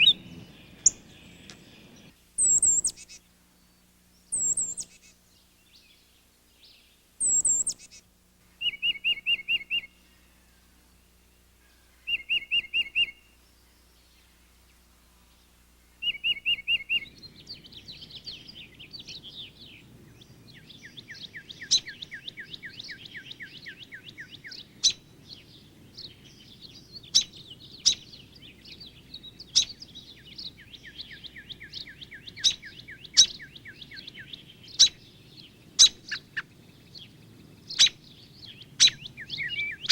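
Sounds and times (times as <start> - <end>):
bird long even trill: 0.0 - 8.0, 8.6 - 14.9, 15.8 - 25.7, 26.4 - 39.9
songbird repeated clear notes: 0.0 - 14.8, 15.4 - 19.9, 20.6 - 39.9
birds twittering chatter: 0.0 - 39.9
sharp bird chip notes: 2.4 - 3.2, 4.4 - 5.2, 7.2 - 8.0.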